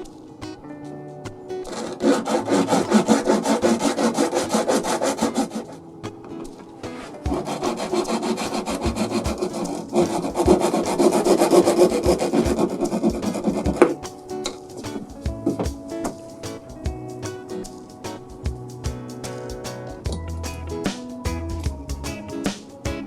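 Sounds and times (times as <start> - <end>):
saw cutting through wood: 1.7 - 5.8, 7.3 - 14.0.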